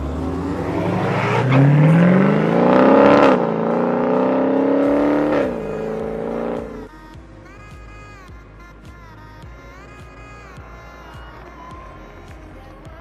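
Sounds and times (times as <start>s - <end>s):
car engine revving through gears: 0.0s - 6.9s.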